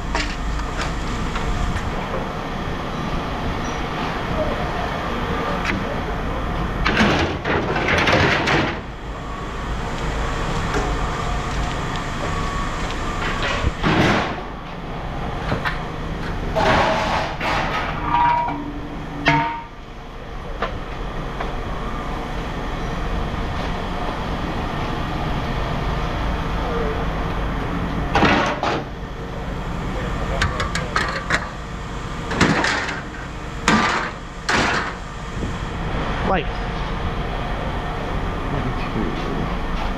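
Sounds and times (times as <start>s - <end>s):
engine running with low rumble: 0.0s - 39.9s
clatter or scraping: 16.6s - 19.6s.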